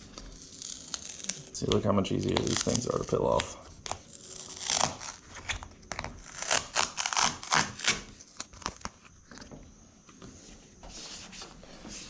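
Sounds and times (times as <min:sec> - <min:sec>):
backing paper peeling and crackling: 0:00.0 - 0:09.4.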